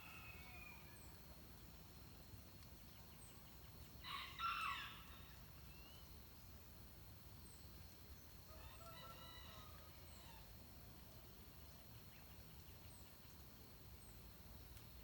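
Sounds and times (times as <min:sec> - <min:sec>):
rooster crowing: 0:08.5 - 0:10.4.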